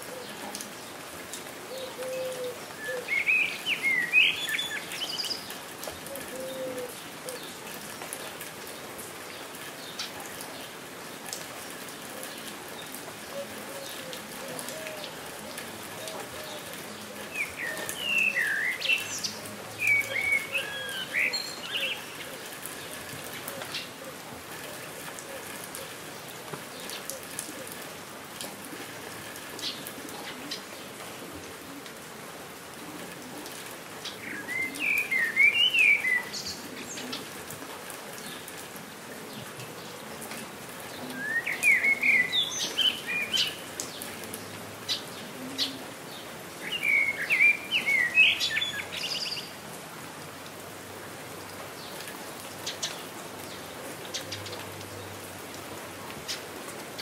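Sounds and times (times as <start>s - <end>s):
rain falling: 0.0s - 57.0s
songbird chirping: 1.7s - 7.5s, 12.3s - 24.0s, 34.0s - 37.3s, 41.0s - 49.6s
raindrops ticking: 4.4s - 35.5s, 43.0s - 45.3s.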